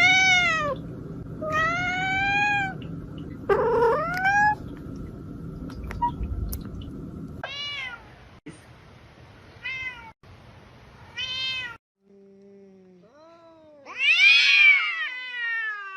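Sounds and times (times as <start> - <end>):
cat meowing: 13.1 - 15.9.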